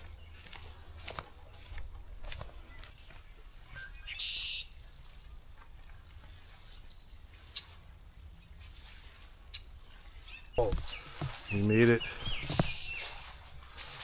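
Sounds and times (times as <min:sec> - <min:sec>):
bird calling: 0:03.6 - 0:05.5, 0:09.5 - 0:14.0.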